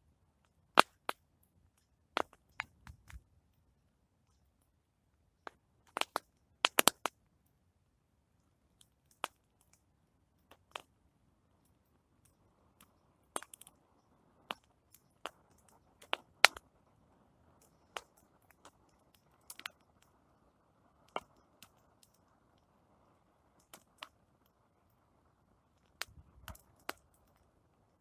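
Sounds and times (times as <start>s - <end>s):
campfire crackling and popping: 1.8s - 3.3s, 5.4s - 7.2s, 8.8s - 9.8s, 10.4s - 10.9s, 11.6s - 28.0s.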